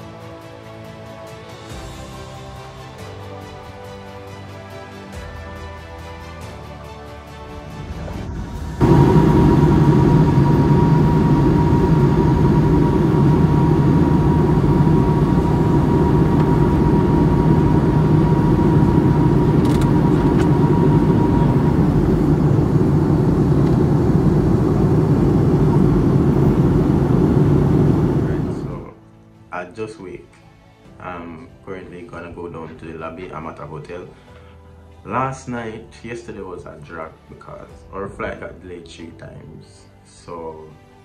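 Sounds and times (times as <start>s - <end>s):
airliner cabin engine drone: 8.0s - 29.0s
faint thin whine: 8.8s - 29.0s.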